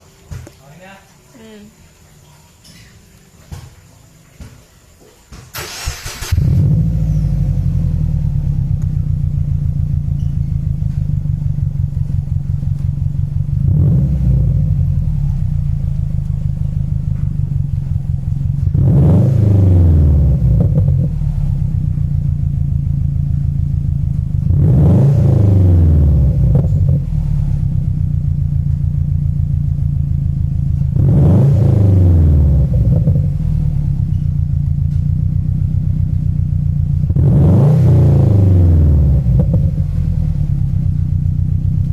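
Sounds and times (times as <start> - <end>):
car engine idling: 3.9 - 41.9
engine revving: 5.6 - 28.8, 30.2 - 34.2, 37.0 - 40.9.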